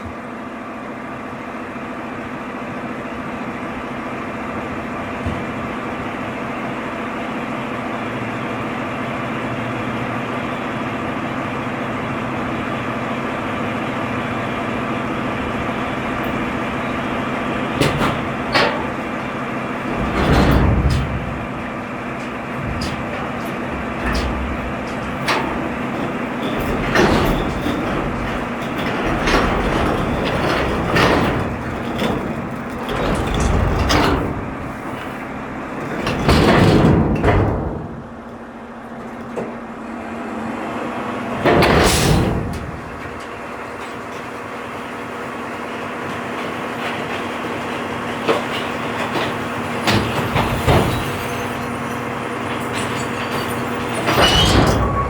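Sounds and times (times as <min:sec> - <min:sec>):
garbage truck running: 0:00.0 - 0:55.0
knocks and rattles: 0:15.6 - 0:38.4, 0:41.4 - 0:55.0.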